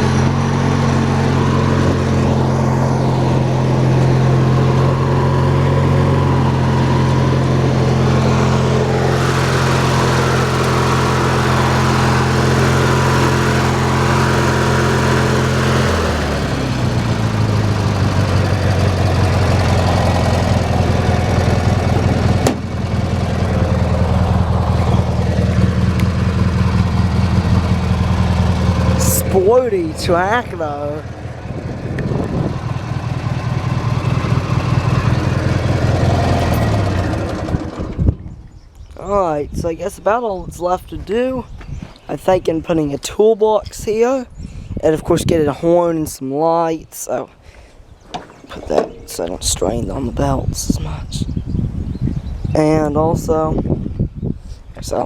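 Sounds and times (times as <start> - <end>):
lawn tractor engine running: 0.0 - 39.2, 48.0 - 50.7.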